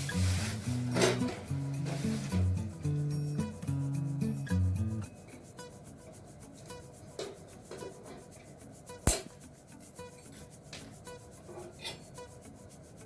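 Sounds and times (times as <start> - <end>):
rubbing and handling noises: 0.0 - 13.0
sharp click: 9.0 - 9.4.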